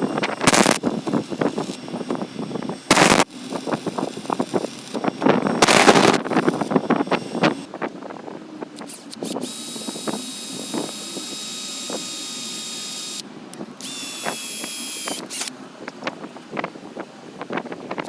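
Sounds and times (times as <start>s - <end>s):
belt grinder whining: 0.0s - 7.7s, 8.8s - 13.2s, 13.8s - 15.5s.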